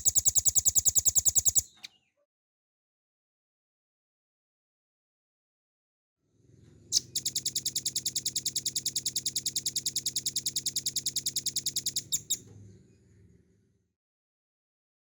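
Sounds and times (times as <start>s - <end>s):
bird singing fast trill: 0.0s - 2.0s, 6.9s - 12.4s.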